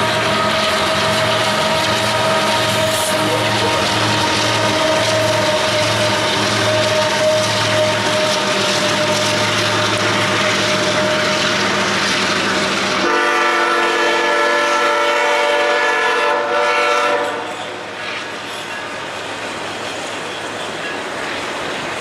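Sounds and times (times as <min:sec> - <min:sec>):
multi-tone train horn: 0:00.0 - 0:11.8, 0:13.0 - 0:17.9
freight train rumbling past: 0:00.0 - 0:22.0.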